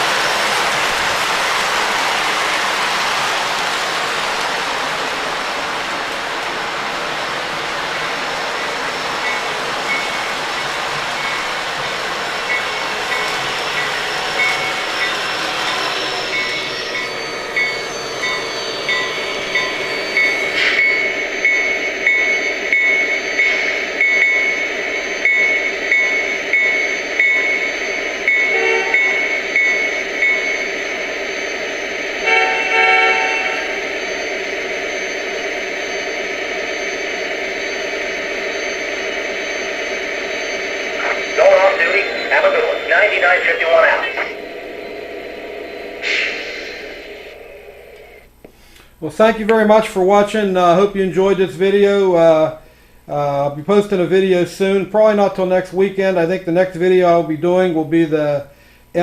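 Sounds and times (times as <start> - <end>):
model train rolling on track: 0.0 - 59.0
pulsing high tone: 8.5 - 48.3.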